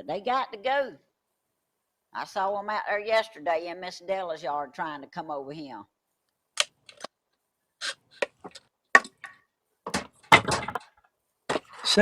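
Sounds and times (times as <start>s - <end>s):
sharp knocks and clicks: 8.2s - 11.7s.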